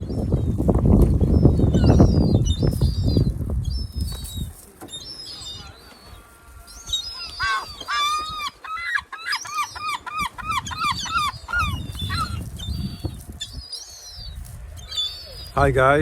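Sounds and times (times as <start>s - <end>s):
gull yelping call: 5.3s - 13.2s.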